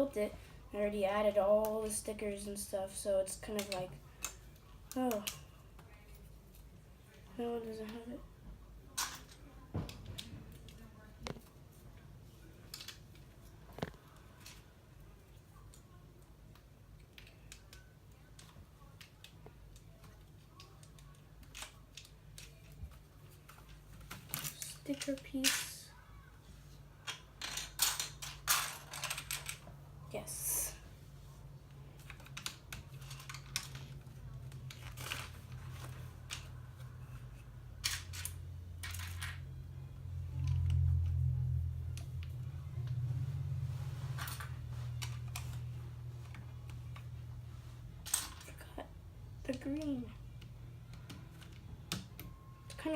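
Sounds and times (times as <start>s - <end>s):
steady low hum: 0.0s - 52.9s
plastic pieces clicking together: 16.5s - 22.8s, 32.0s - 36.5s.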